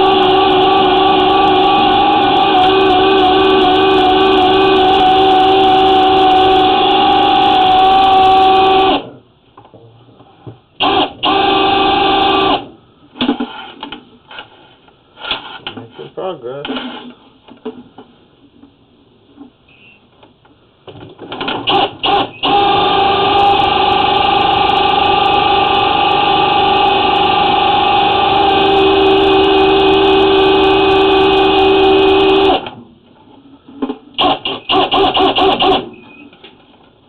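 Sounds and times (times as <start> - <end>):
drain-cleaning machine motor: 0.0 - 9.0, 22.4 - 32.6.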